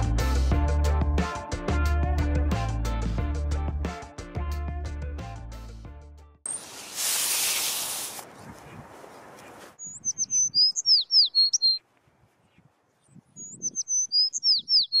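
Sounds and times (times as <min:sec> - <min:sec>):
songbird singing high chirps: 0:09.8 - 0:11.8, 0:12.6 - 0:15.0.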